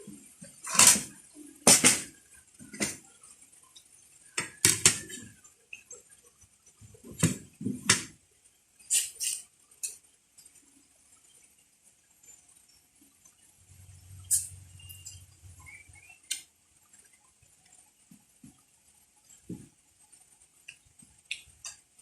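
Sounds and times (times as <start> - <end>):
eating clicks and crunches: 20.6 - 22.0.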